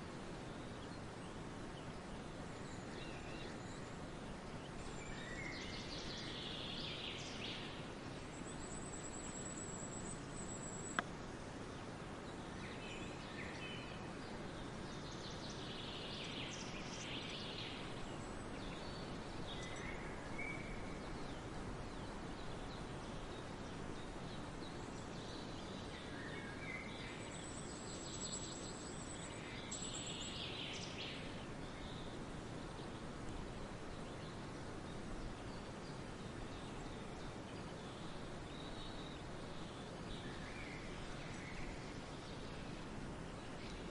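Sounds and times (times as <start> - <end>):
background hiss: 0.0 - 43.9.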